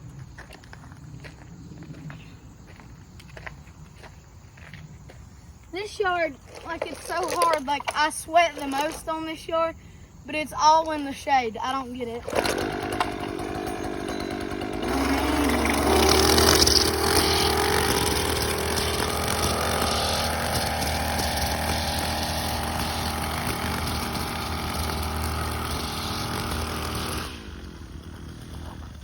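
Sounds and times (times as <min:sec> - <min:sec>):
small petrol engine revving: 0:06.0 - 0:09.2, 0:11.6 - 0:29.0.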